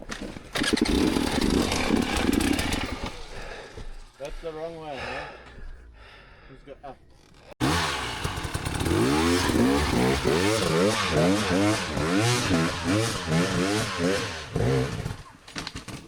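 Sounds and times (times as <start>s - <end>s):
dirt bike engine revving: 0.5s - 3.5s, 7.2s - 15.4s.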